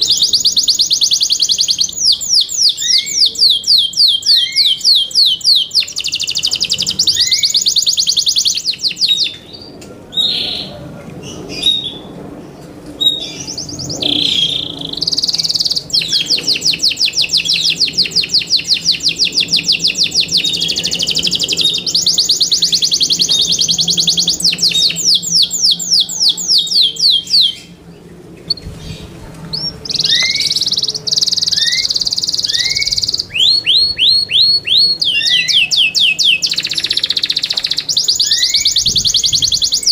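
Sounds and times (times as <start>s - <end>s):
canary singing trills: 0.0s - 12.1s, 13.0s - 39.9s.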